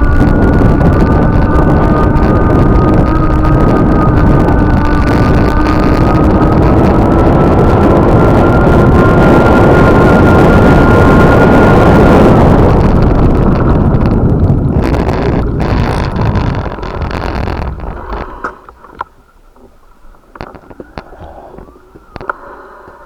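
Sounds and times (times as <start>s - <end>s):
vehicle rumble: 0.0s - 22.3s
thin whine: 0.0s - 23.0s
wind on microphone: 0.0s - 23.0s.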